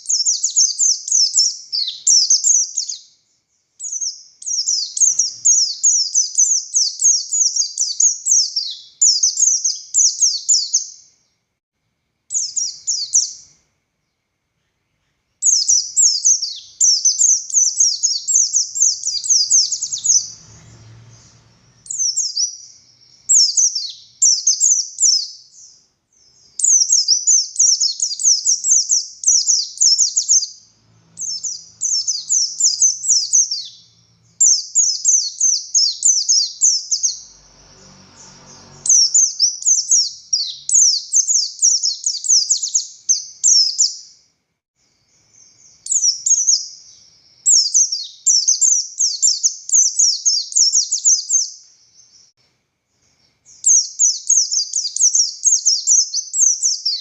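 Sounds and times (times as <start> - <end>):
bird singing high notes: 15.4 - 25.7, 26.3 - 37.5.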